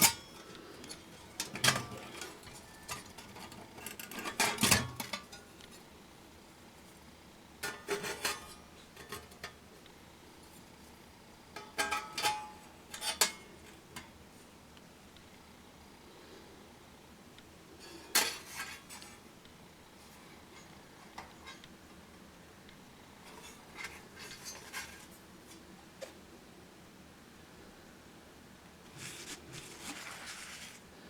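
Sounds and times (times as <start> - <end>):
metal camp gear clinking: 0.0 - 5.5.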